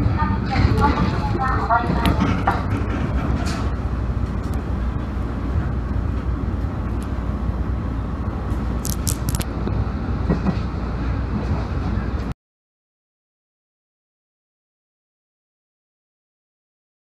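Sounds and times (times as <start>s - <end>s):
train rumbling on rails: 0.0s - 12.4s.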